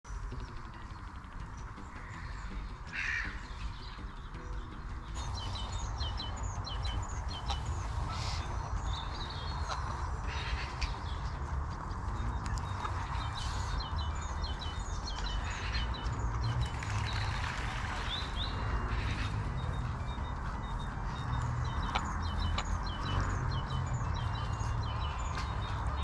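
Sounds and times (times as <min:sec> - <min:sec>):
high bird chirps: 0:00.1 - 0:26.0
harsh bird call: 0:01.5 - 0:11.4.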